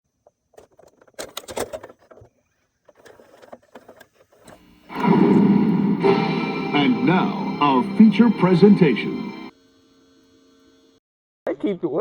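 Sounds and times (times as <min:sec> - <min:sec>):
loud music: 0:04.9 - 0:09.5.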